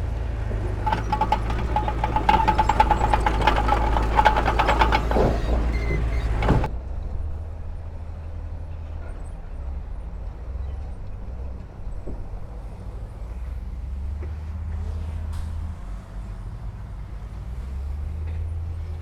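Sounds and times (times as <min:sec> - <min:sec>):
dense metallic clatter: 0:00.8 - 0:06.7
diesel engine running low: 0:00.8 - 0:06.7
steady high squeal: 0:00.8 - 0:06.7.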